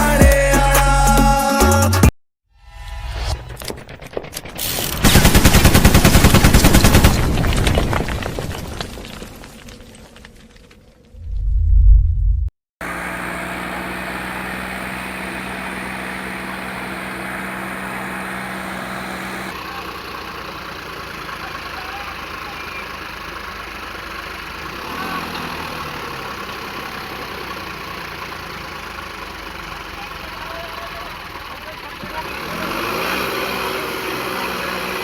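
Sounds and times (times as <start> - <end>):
tractor engines running: 12.8 - 35.0.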